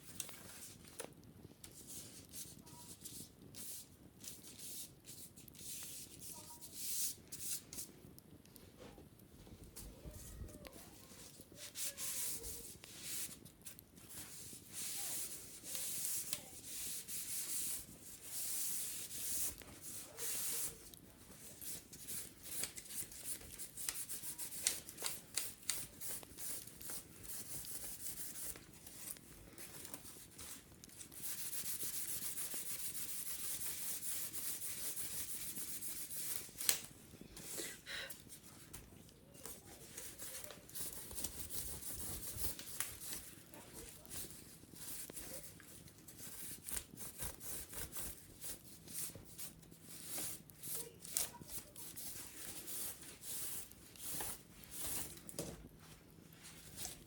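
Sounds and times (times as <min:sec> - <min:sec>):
small crackly clicks: 0:00.0 - 0:14.5, 0:15.2 - 0:57.0
wicker basket being scrubbed: 0:09.8 - 0:38.8, 0:39.4 - 0:57.0.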